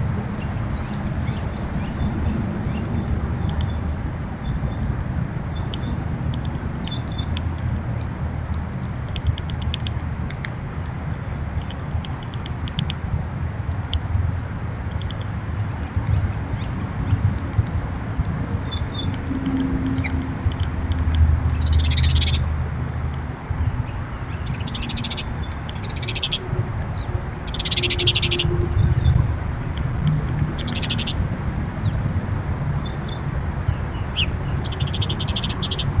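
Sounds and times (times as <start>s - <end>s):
birds trilling: 21.5s - 22.5s, 23.7s - 29.2s, 30.6s - 31.2s, 32.8s - 36.0s.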